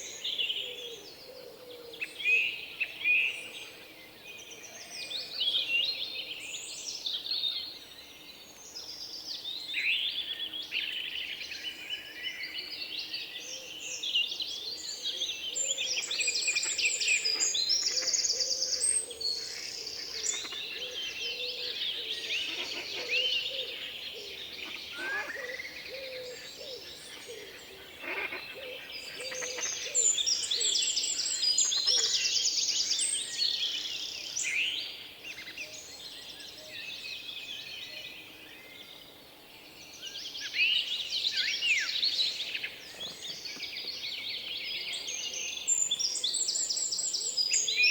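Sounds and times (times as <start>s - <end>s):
birds chirping and singing: 13.5s - 39.2s, 39.9s - 47.9s.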